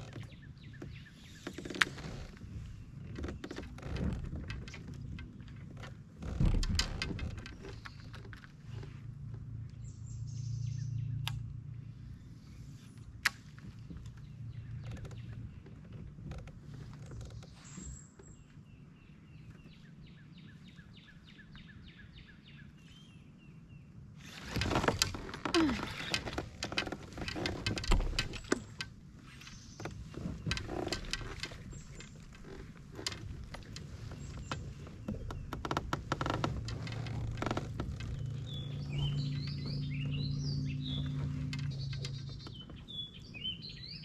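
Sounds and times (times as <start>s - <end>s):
clicks knocks and clatter: 3.1s - 8.6s, 24.4s - 29.0s, 29.8s - 42.9s
low hum: 24.3s - 44.0s
bird chirping: 33.5s - 44.0s.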